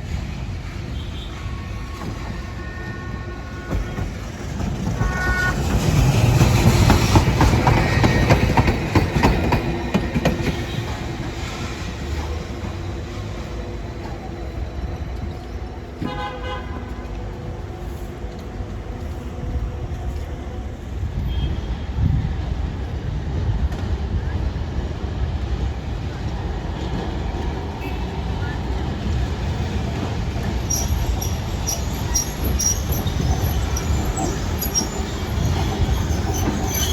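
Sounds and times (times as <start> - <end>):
tram wheels rumbling and clattering: 0.0 - 36.9
tram horn toot: 0.8 - 22.7.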